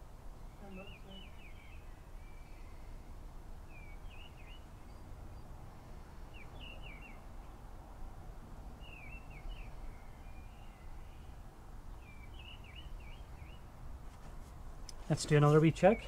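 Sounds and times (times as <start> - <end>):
bird chirping: 0.4 - 3.0, 3.7 - 5.6, 6.2 - 7.6, 8.8 - 13.8.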